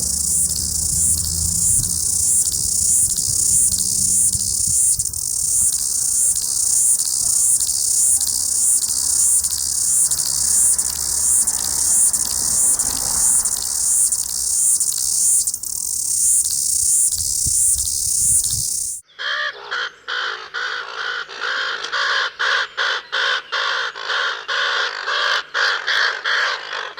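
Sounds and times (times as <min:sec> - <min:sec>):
cricket-like insect chirping: 0:00.0 - 0:19.0.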